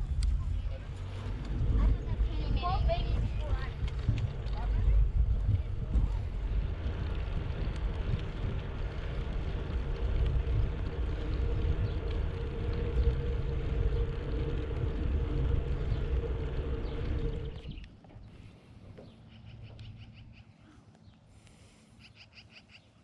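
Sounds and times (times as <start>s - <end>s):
steady hum: 0.0s - 18.0s
wind rushing over microphone: 0.0s - 18.0s
bicycle tyres rolling: 0.0s - 19.1s.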